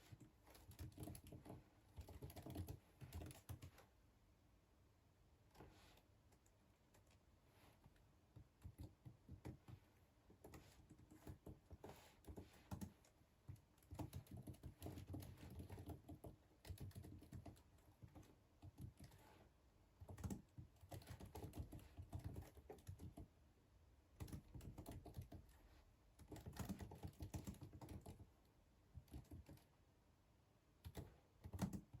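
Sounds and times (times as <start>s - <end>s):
typing on computer keyboard: 0.0s - 3.8s, 8.3s - 19.2s, 20.0s - 23.3s, 24.2s - 28.3s, 28.9s - 29.7s, 30.8s - 32.0s.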